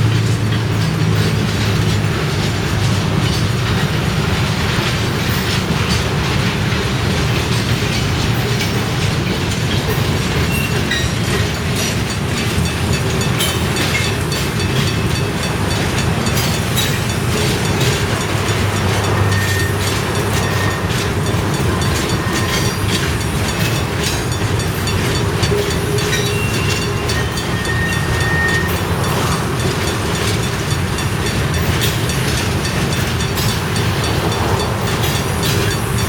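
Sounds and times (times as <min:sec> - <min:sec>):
freight train rolling past: 0:00.0 - 0:36.0
wheels clacking over rail joints: 0:00.0 - 0:36.0
faint wheel squeal: 0:19.1 - 0:23.1, 0:25.9 - 0:29.4.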